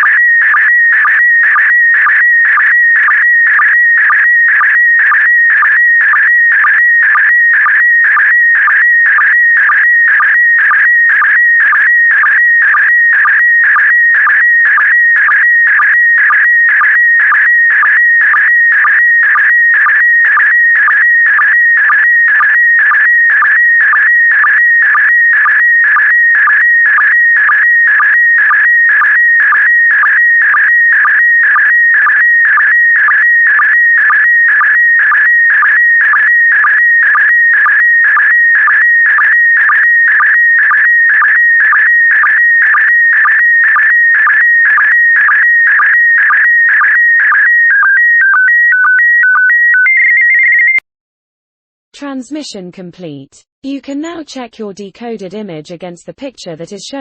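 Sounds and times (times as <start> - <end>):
sync blips: 0.0 - 50.8.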